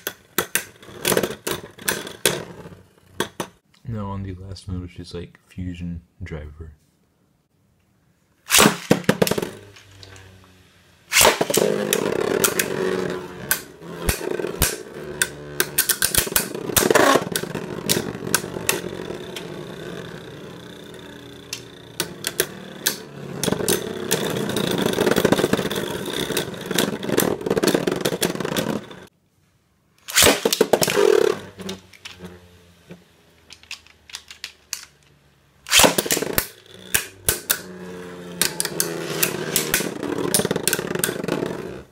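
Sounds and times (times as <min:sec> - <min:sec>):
spinning top launch and clatter: 0:08.4 - 0:10.4, 0:11.0 - 0:29.1, 0:30.0 - 0:32.5, 0:33.4 - 0:41.9
spinning tops whirring: 0:08.5 - 0:29.1, 0:30.0 - 0:41.9
tops clacking against each other: 0:08.6 - 0:29.1, 0:30.1 - 0:41.5.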